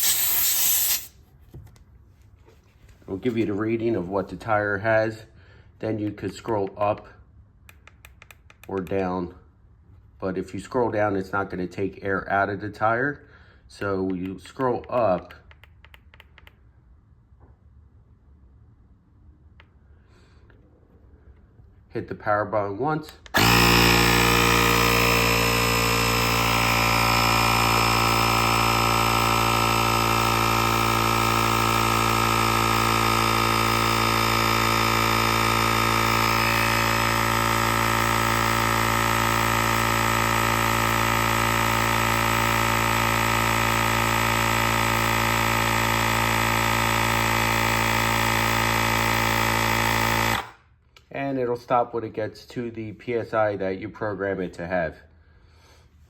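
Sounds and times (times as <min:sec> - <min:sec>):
air compressor buzzing hum: 0:00.0 - 0:01.2, 0:23.3 - 0:50.6.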